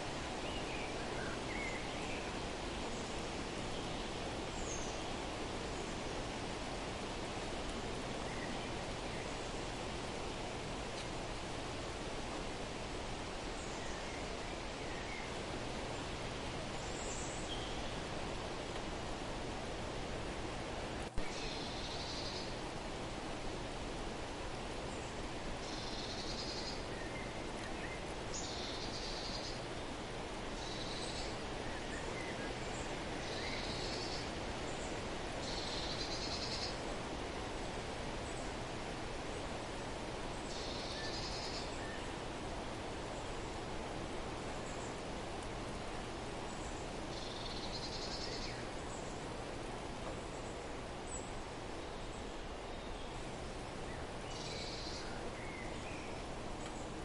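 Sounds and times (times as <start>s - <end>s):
steady outdoor hiss: 0.0s - 57.0s
songbird trilling: 40.5s - 41.8s.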